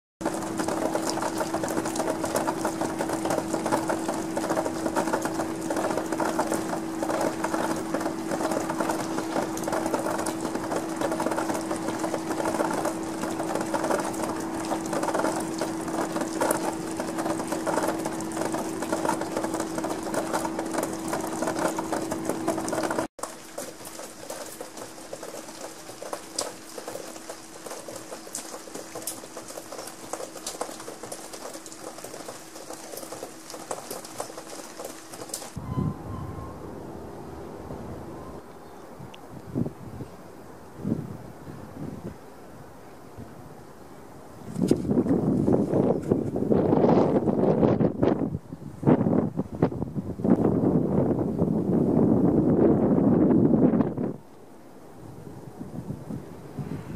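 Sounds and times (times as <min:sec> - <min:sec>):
rain pattering: 0:00.2 - 0:35.6.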